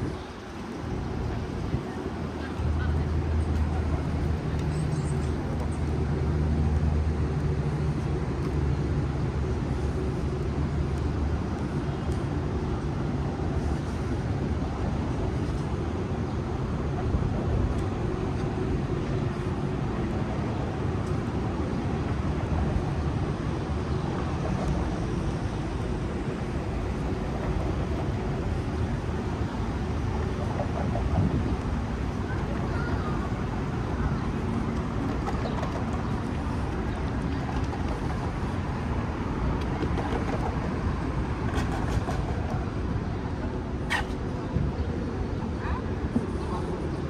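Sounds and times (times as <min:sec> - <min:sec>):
passing vehicles: 0:24.2 - 0:42.9
engine low hum: 0:24.3 - 0:42.3.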